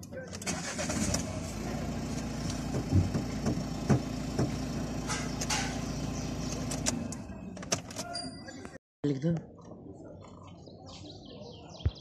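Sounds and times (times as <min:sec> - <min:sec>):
car engine idling hum: 0:00.4 - 0:08.0.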